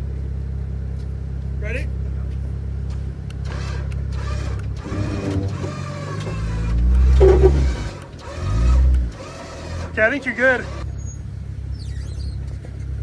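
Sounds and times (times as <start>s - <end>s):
engine revving in surges: 2.9s - 13.0s
winch motor whine: 3.3s - 12.6s.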